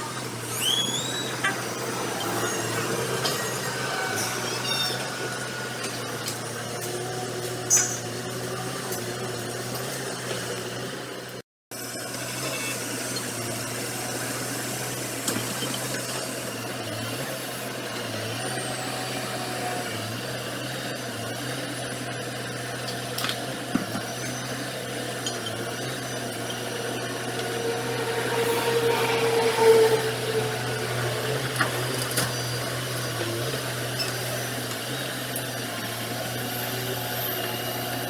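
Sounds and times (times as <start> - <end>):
machine whine: 0.0 - 8.4, 23.2 - 38.0
diesel engine of earthmoving machine: 0.0 - 38.0.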